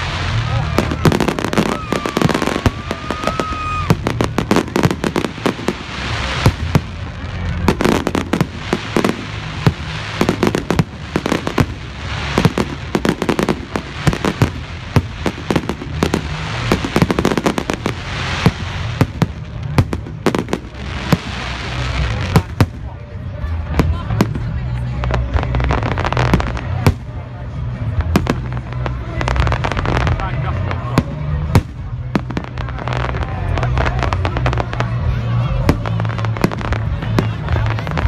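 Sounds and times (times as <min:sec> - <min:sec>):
firework whistling: 0:00.0 - 0:22.6
fireworks bangs and crackles: 0:00.0 - 0:38.0.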